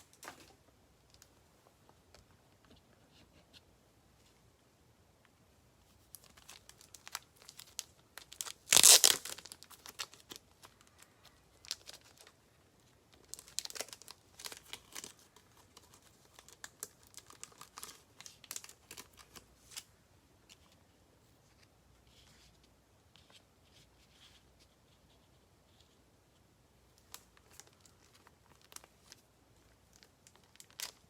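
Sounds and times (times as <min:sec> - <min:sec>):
plastic packaging crinkling: 0:06.1 - 0:12.4, 0:13.1 - 0:19.9, 0:27.0 - 0:31.0
plastic ripping: 0:06.3 - 0:10.4.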